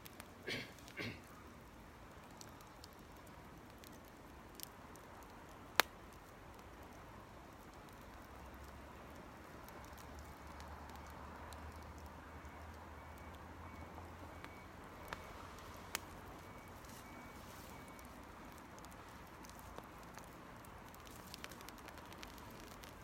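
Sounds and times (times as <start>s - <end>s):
campfire crackling: 0.0s - 23.0s.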